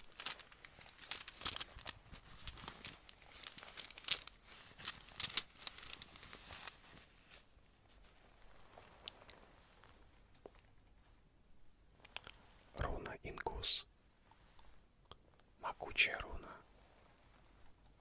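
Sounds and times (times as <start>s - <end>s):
crinkly crackling clicks and taps: 0.0s - 7.0s, 8.8s - 11.1s, 12.0s - 12.5s.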